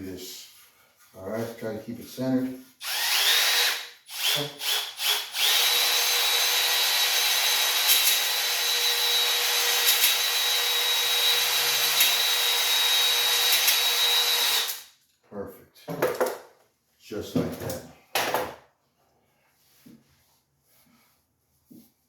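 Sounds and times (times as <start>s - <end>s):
electric drill whining: 2.8s - 14.9s.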